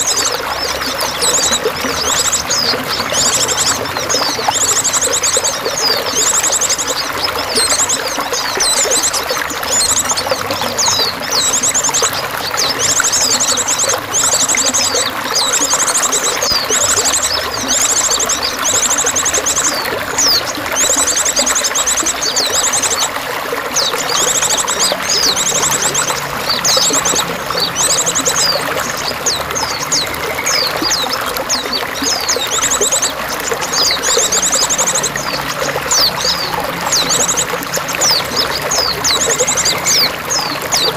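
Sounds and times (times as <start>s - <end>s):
songbirds chirping and trilling: 0.0s - 40.9s
water pouring and trickling: 0.0s - 40.9s.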